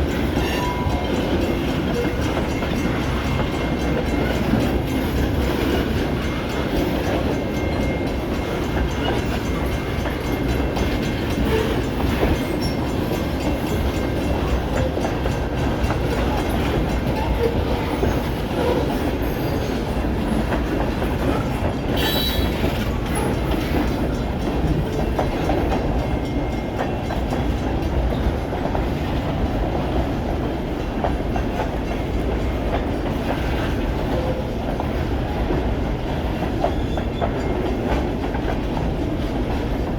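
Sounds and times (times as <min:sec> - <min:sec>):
freight train wheels rumbling: 0:00.0 - 0:39.9
rail joints clicking: 0:00.0 - 0:39.9.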